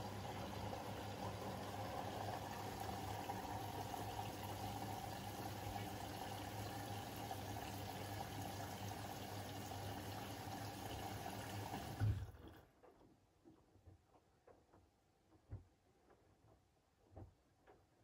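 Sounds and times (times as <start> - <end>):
washing machine filling with water: 0.0 - 12.7.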